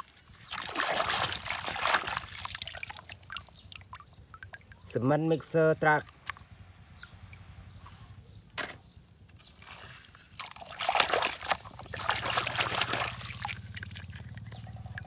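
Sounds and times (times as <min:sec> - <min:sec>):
water splashing and trickling: 0:00.0 - 0:06.4, 0:09.3 - 0:15.0.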